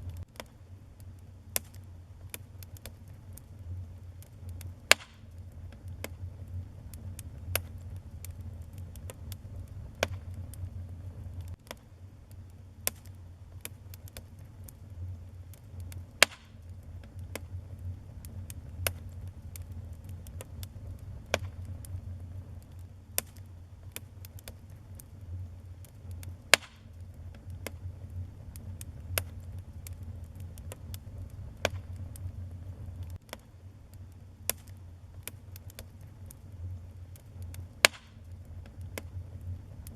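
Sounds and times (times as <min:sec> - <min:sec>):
fire crackling and popping: 0:00.0 - 0:39.9
low rumble of flame: 0:00.0 - 0:39.9.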